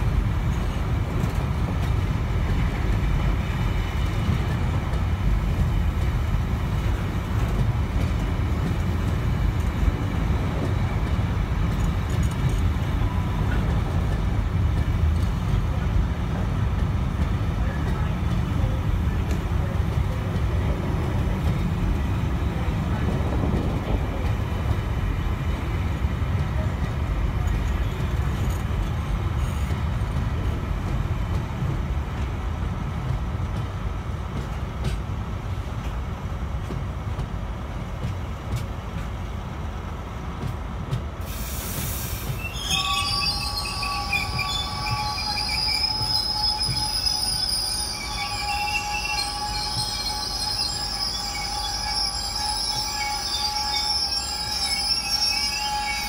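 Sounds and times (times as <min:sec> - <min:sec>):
freight train wheels rumbling: 0:00.0 - 0:56.0
brief hiss: 0:41.2 - 0:42.5
wheels squealing against rail: 0:41.3 - 0:56.0.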